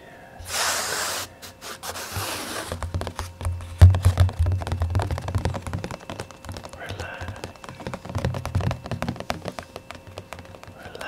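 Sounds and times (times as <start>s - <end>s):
whispered hiss: 0.0s - 2.7s
fast soft tapping: 2.6s - 11.0s.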